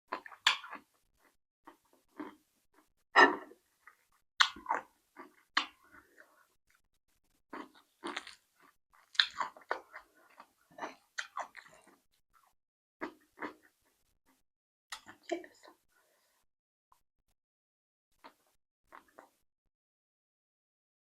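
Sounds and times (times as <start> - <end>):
person chewing crunchy food: 0.1 - 13.9.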